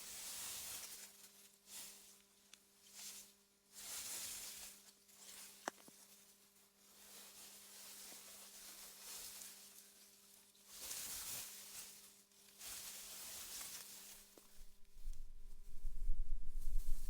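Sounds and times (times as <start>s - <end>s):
wind rustling through grass: 14.0s - 17.0s
low rumble: 14.6s - 17.0s
steady low hum: 14.6s - 17.0s.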